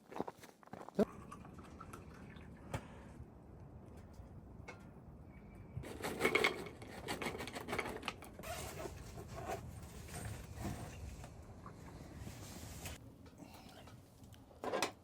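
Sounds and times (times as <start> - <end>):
rustling and scraping: 5.8 - 13.0.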